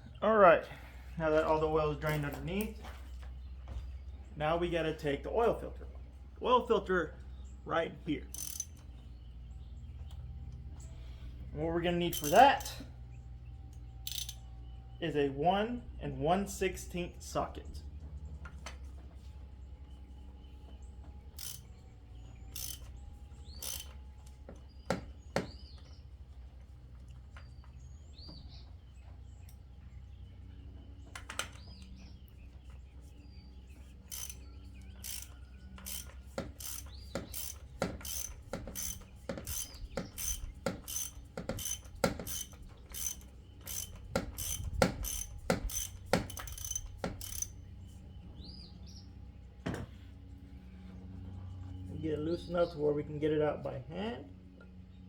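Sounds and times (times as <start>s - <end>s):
socket ratchet clicking: 8.3s - 8.8s, 12.1s - 12.7s, 14.0s - 14.4s, 21.4s - 21.6s, 22.5s - 22.9s, 23.6s - 24.0s, 34.1s - 34.4s, 35.0s - 47.6s.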